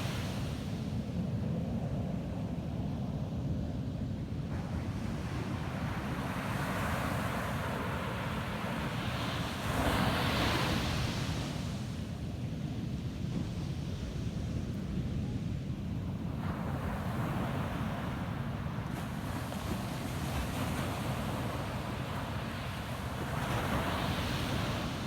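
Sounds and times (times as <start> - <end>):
ocean waves breaking on beach: 16.1 - 25.0.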